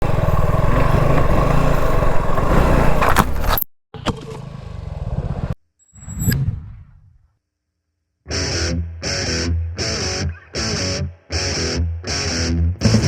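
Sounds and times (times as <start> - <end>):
motorcycle engine running: 0.0 - 3.6
clattering and scraping: 2.2 - 3.7.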